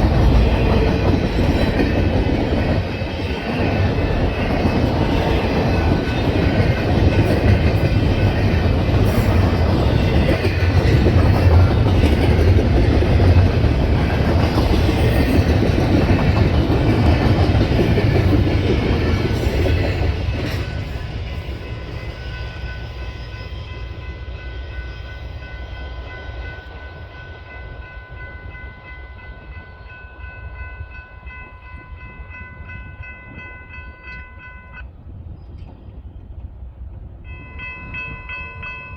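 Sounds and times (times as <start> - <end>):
train wheels clacking on rails: 0.0 - 28.6.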